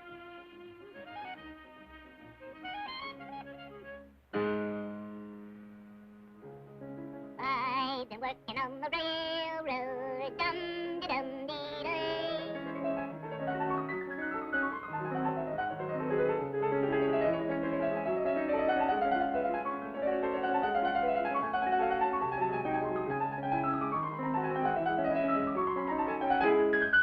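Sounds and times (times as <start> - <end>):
cartoon piano music: 6.7 - 27.0.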